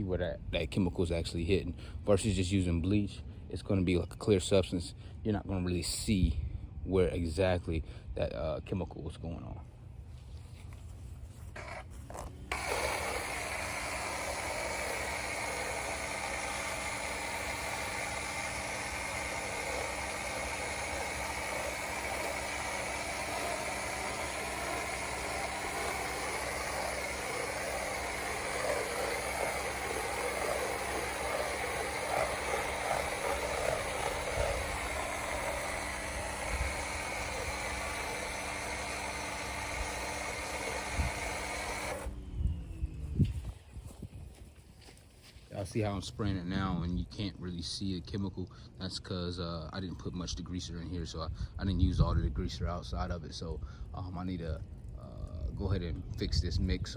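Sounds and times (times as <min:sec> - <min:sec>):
pressure washer running: 0:11.5 - 0:42.2
water spraying: 0:12.1 - 0:42.1.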